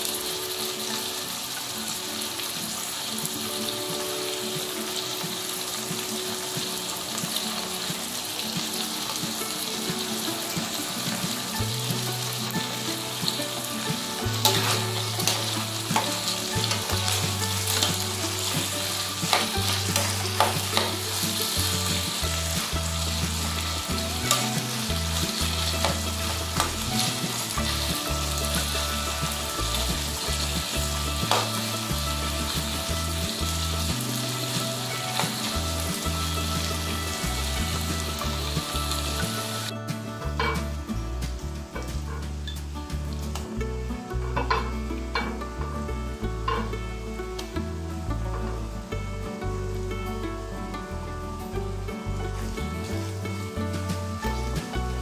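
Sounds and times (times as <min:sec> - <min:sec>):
food sizzling in hot oil: 0:00.0 - 0:43.4
spatula scraping pan: 0:04.0 - 0:39.7.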